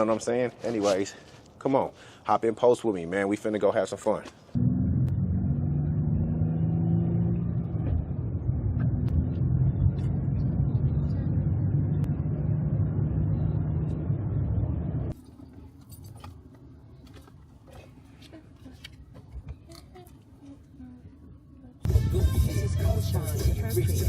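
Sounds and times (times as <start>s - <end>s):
car engine and road noise: 4.5s - 17.9s.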